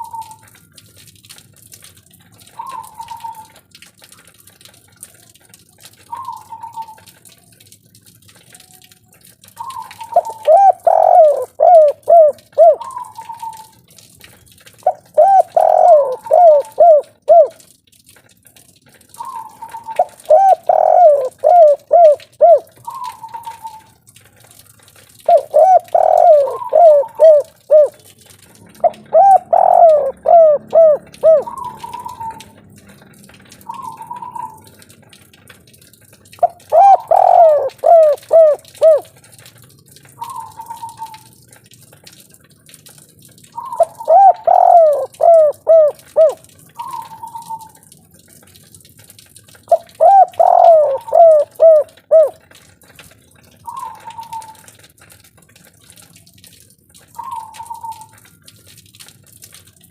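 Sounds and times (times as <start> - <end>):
dove cooing: 9.6 - 13.7, 14.8 - 17.6, 19.2 - 23.9, 25.2 - 28.1, 28.7 - 32.6, 33.7 - 34.7, 36.4 - 39.1, 43.6 - 47.8, 49.7 - 52.4, 53.6 - 54.7, 57.2 - 58.2.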